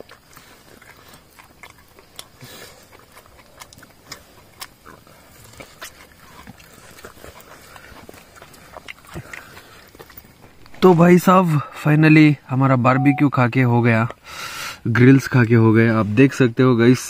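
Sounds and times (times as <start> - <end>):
person chewing and biting: 0.0 - 10.7.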